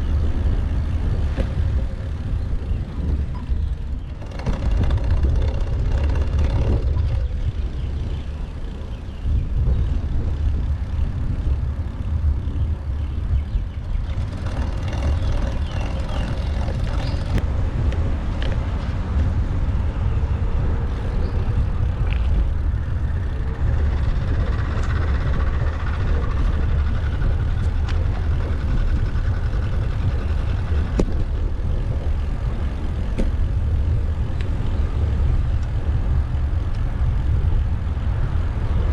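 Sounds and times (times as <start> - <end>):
road traffic passing: 0.0 - 38.9
wind buffeting microphone: 0.0 - 38.9
sharp ticks: 3.0 - 9.0, 9.6 - 18.6.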